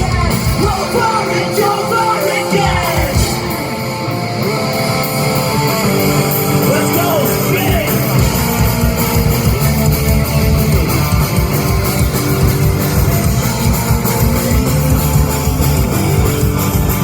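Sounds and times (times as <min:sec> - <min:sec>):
person singing: 0:00.0 - 0:03.6
electric guitars: 0:00.0 - 0:17.0
rock band playing live: 0:00.0 - 0:17.0.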